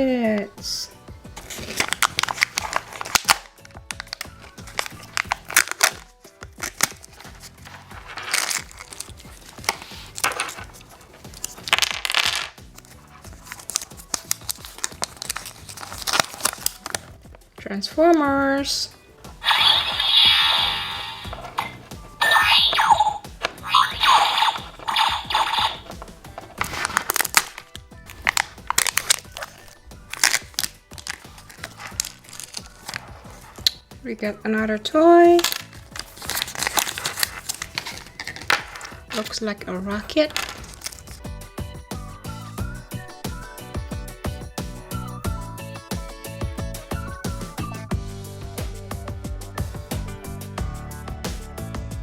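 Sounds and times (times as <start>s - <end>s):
quiet background music: 0.0s - 52.0s
plastic packaging crinkling: 1.4s - 17.2s, 19.3s - 33.9s, 35.4s - 39.4s, 40.1s - 41.2s.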